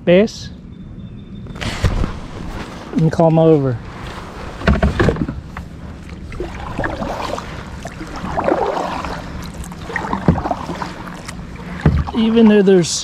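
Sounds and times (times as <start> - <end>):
water rushing: 4.4 - 13.0
knocks on kayak hull: 11.8 - 12.1.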